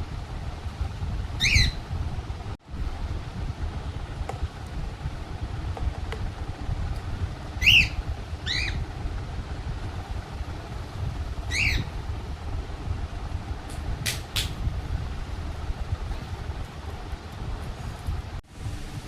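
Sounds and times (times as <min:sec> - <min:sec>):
wind rumble on microphone: 0:00.0 - 0:19.0
baby parrot squawking: 0:01.4 - 0:01.8, 0:07.6 - 0:08.8, 0:11.5 - 0:11.9.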